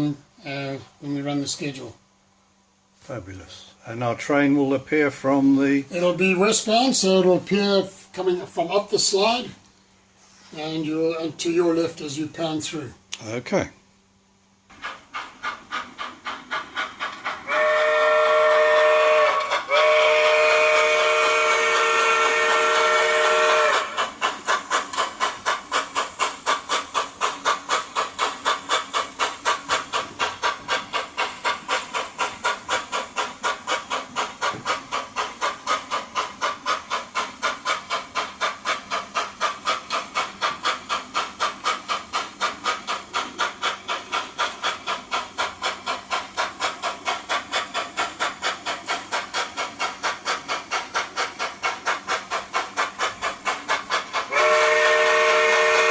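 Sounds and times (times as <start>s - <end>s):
locomotive chuffing: 3.2s - 9.6s, 10.2s - 12.8s, 14.7s - 55.9s
hiss of steam: 14.7s - 55.9s
model steam locomotive whistle: 17.4s - 24.1s, 54.3s - 55.9s.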